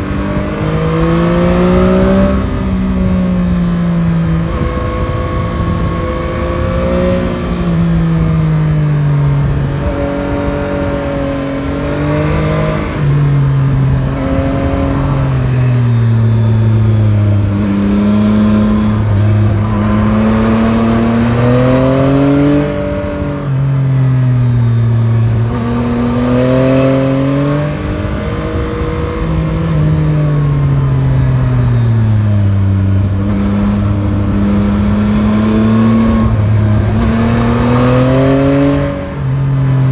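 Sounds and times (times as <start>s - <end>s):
motorcycle engine revving: 0.0s - 39.9s
wind noise: 0.0s - 39.9s.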